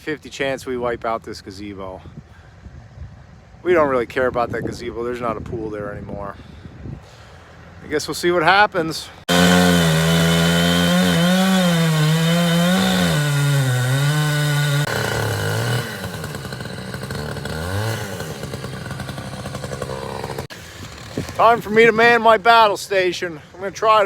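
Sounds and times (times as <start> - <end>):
chainsaw cutting wood: 9.2 - 22.2.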